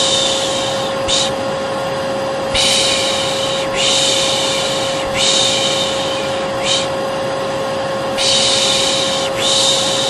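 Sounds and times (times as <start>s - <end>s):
person shushing: 0.0s - 1.4s, 2.5s - 7.0s, 8.2s - 10.0s
vacuum cleaner running: 0.0s - 10.0s.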